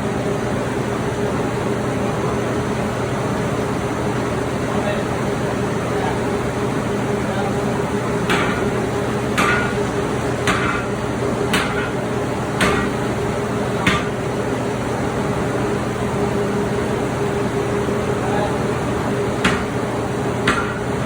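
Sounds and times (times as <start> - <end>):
steady hum: 3.4 - 21.0
hammer striking metal bar on anvil: 8.3 - 8.8, 9.4 - 10.9, 11.5 - 12.0, 12.6 - 13.1, 13.8 - 14.2, 19.4 - 19.8, 20.4 - 20.9.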